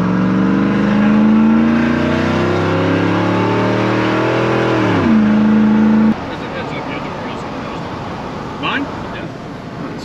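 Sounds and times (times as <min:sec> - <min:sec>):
car engine accelerating: 0:00.0 - 0:08.0.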